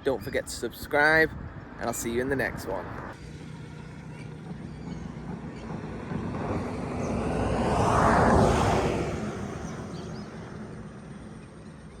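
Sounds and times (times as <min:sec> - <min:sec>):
vehicle passing at speed: 0:02.8 - 0:12.0.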